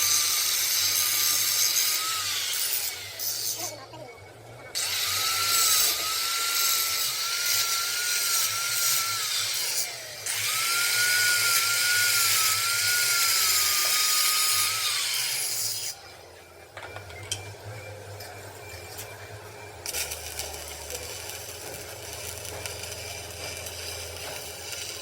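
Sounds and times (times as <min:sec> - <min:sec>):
electric power tool whining: 0:04.8 - 0:25.0.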